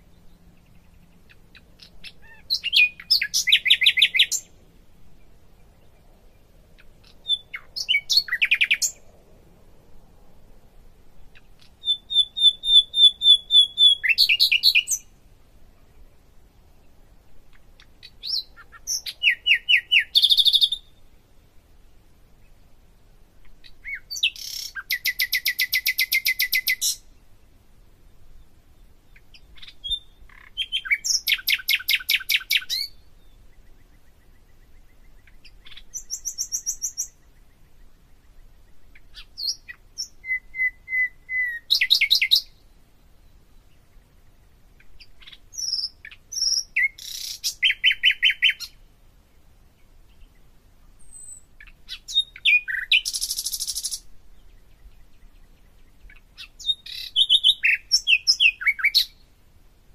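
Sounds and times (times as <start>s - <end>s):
bird trilling chirps: 0.0s - 4.5s, 6.8s - 9.0s, 11.3s - 15.1s, 17.8s - 21.0s, 23.6s - 27.1s, 29.1s - 42.6s, 44.8s - 48.8s, 51.0s - 59.2s.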